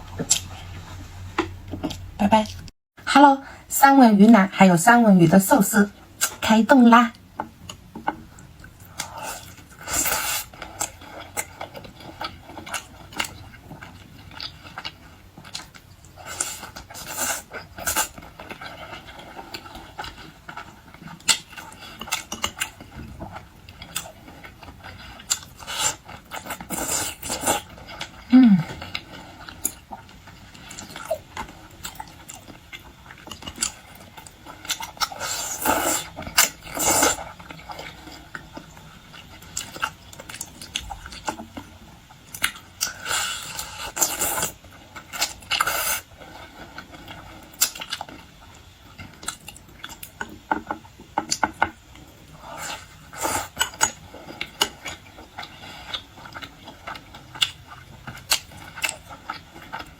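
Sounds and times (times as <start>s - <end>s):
close chewing and lip smacks: 7.4s - 59.9s.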